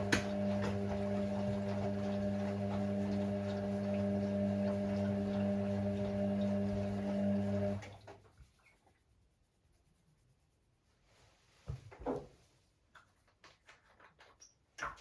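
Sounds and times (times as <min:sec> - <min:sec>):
washing machine humming: 0:00.0 - 0:08.2.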